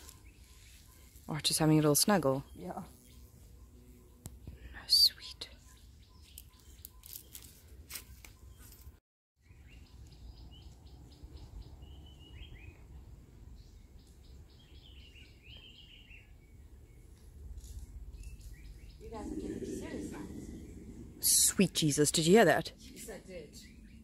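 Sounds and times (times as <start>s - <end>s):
faint birdsong: 0.0s - 24.0s.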